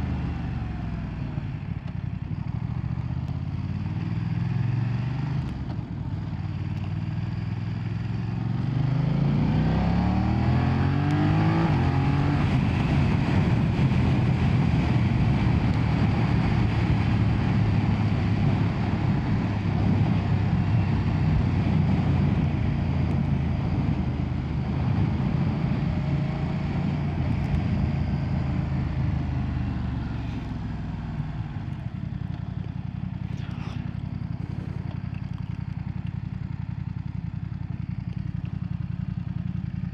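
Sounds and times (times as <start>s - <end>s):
motorcycle engine accelerating: 0.0s - 39.9s
wind noise: 11.2s - 28.6s.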